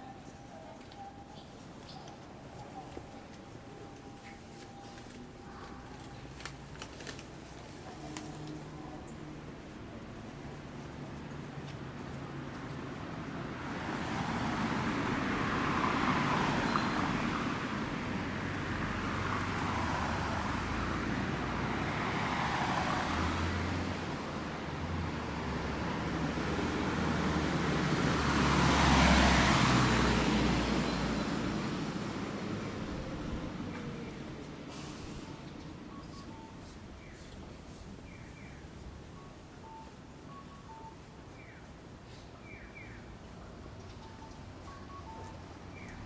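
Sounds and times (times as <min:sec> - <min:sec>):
cars passing on a road: 0:00.0 - 0:46.0.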